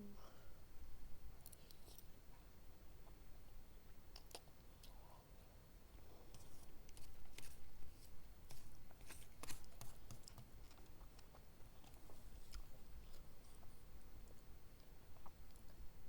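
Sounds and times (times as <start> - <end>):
close chewing with wet smacks: 9.4 - 15.9.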